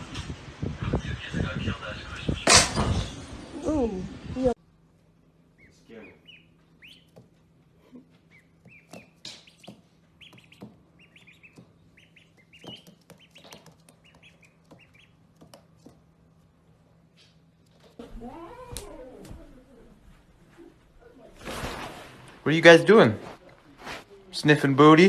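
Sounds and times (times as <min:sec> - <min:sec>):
small birds chirping: 0:05.4 - 0:16.0.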